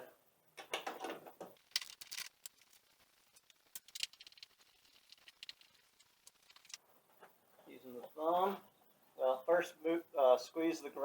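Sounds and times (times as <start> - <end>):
hands handling small parts: 0.8 - 6.8.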